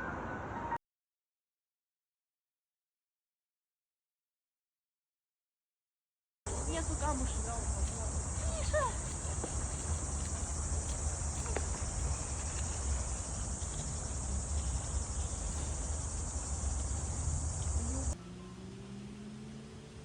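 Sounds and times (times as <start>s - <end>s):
insects buzzing: 6.5s - 18.2s.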